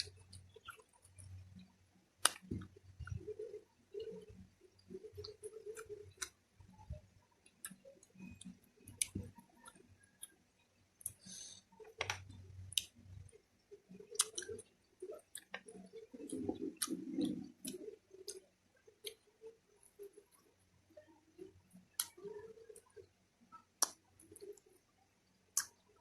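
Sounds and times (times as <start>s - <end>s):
person chewing: 4.0s - 6.4s, 14.0s - 18.4s.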